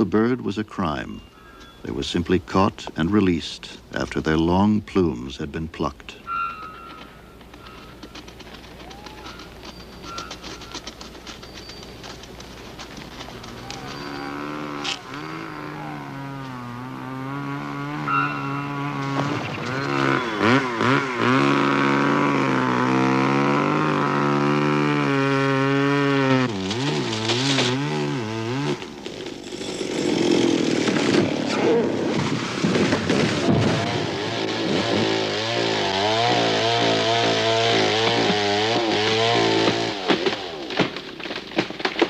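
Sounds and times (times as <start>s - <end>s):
chainsaw revving and cutting: 12.9s - 42.0s.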